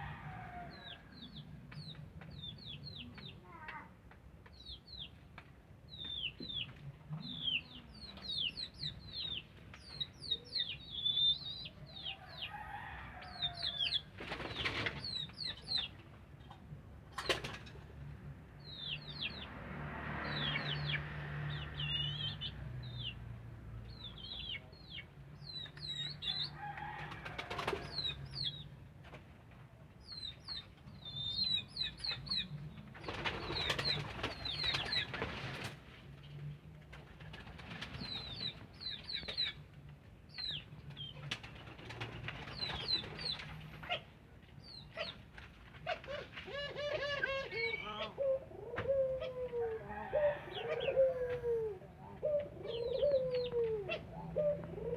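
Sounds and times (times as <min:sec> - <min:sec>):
birds chirping: 0:46.6 - 0:54.9.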